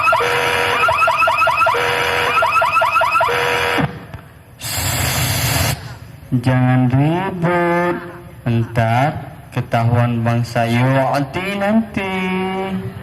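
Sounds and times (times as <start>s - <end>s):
car alarm tones and chirps: 0.0s - 3.9s
short burst of hiss: 4.6s - 6.1s.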